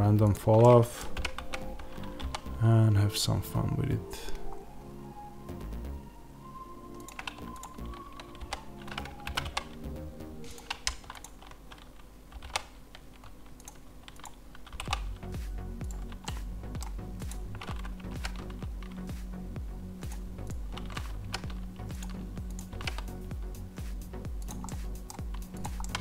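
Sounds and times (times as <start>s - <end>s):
soft background music: 0.0s - 12.6s, 13.6s - 26.0s
keyboard keystrokes clicking: 0.5s - 2.5s, 6.9s - 15.1s, 15.8s - 18.9s, 20.1s - 23.1s, 24.4s - 26.0s.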